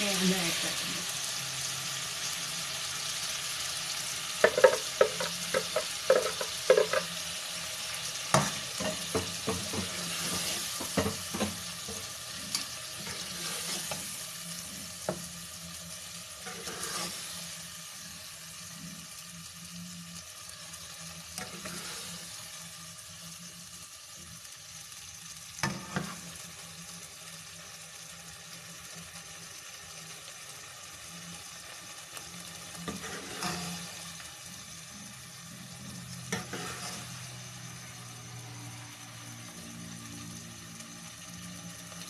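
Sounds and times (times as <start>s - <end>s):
chicken sizzling in oil: 0.0s - 42.0s
spoon knocking against pot: 4.4s - 7.1s
spoon scraping pot: 4.4s - 7.1s, 8.4s - 14.1s, 16.4s - 17.4s, 21.4s - 22.2s, 32.8s - 34.0s, 36.3s - 37.2s.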